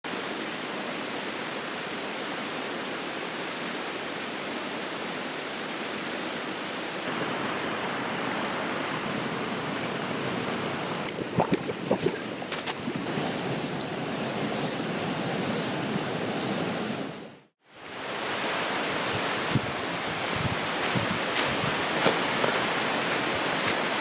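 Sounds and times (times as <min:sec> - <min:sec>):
river flowing over rocks: 0:17.8 - 0:24.0.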